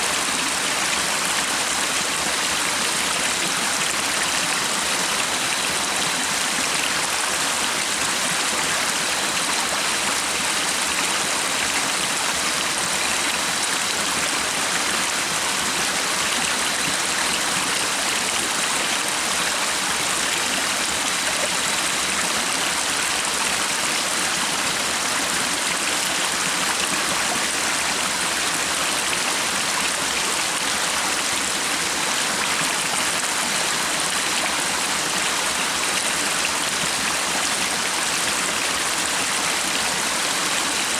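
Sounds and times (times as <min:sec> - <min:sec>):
stream water running: 0:00.0 - 0:40.9.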